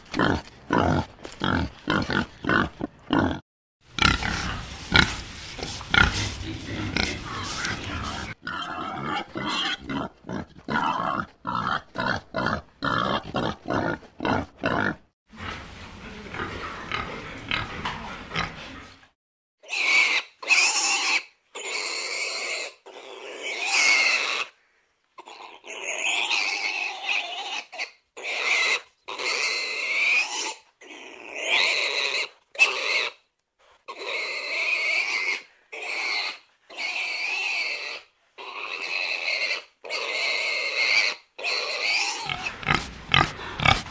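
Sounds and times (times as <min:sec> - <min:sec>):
pigs grunting: 0:00.1 - 0:24.4, 0:33.9 - 0:43.9
pigs squealing: 0:05.8 - 0:15.0, 0:16.4 - 0:18.8, 0:19.6 - 0:24.5, 0:25.2 - 0:33.2, 0:33.9 - 0:43.9.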